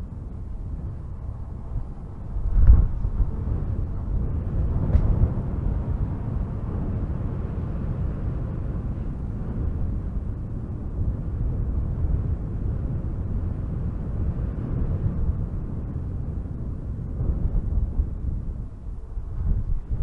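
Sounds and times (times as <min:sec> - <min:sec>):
strong wind gusting through trees: 0:00.0 - 0:20.0
faint short crack: 0:04.9 - 0:05.2.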